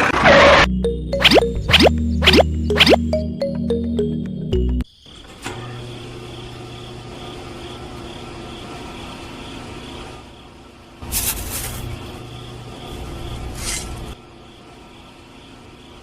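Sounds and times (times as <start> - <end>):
music: 0.6 - 4.8.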